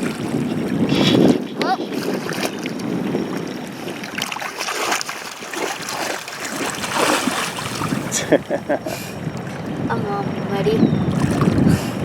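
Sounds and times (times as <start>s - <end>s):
feet splashing in muddy water: 0.0s - 8.5s.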